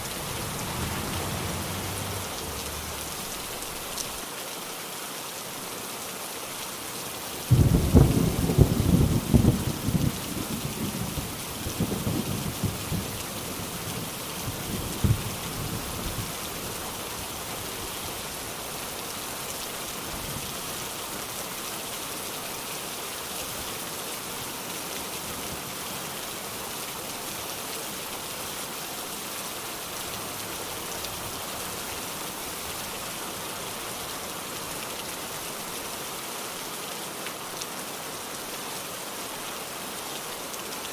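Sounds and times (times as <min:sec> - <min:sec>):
thunder clap rumbling: 0:00.0 - 0:04.2
steady rain falling: 0:00.0 - 0:40.9.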